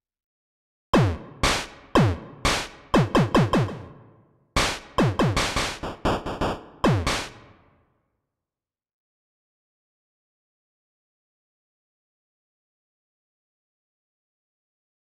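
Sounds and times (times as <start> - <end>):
electronic drum hits: 1.0 - 3.9, 4.6 - 7.5.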